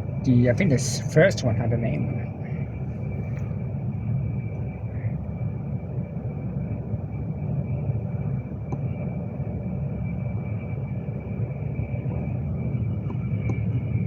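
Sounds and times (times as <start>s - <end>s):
faint high whine: 0.0s - 14.0s
train running rumble: 0.0s - 14.0s.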